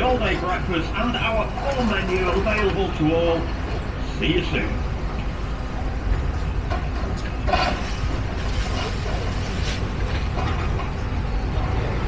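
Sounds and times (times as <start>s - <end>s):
street background rumble: 0.0s - 12.0s.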